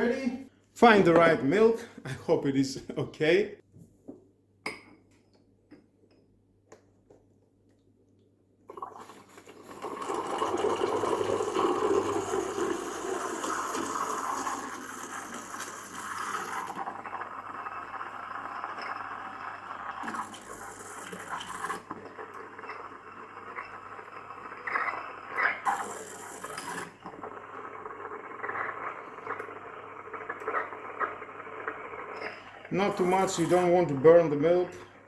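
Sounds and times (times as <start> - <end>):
steam wand hissing in milk: 10.8 - 16.8.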